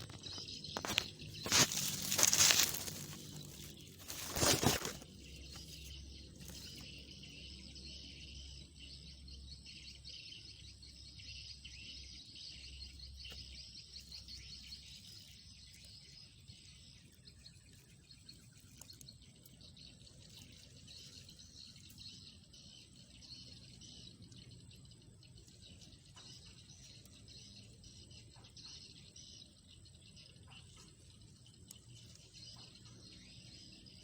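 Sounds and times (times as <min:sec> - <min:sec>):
insects chirping: 0:00.0 - 0:09.3
birds chirping: 0:00.0 - 0:34.0.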